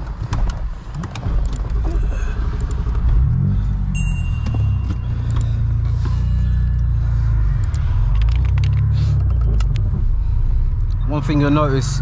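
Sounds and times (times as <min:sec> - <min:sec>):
car engine rumbling: 0:00.0 - 0:12.0
light clicks: 0:07.6 - 0:09.9.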